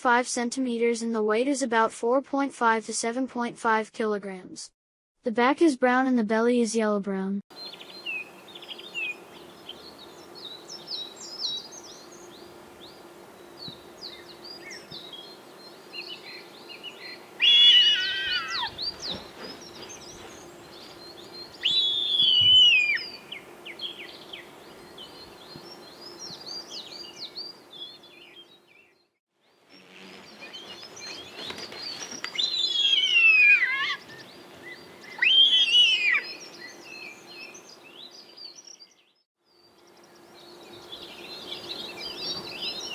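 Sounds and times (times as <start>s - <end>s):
loud descending bird call: 17.4s - 19.2s, 21.6s - 23.2s, 32.3s - 34.2s, 35.0s - 36.4s
quick high bird chirps: 21.5s - 23.2s, 29.7s - 34.2s.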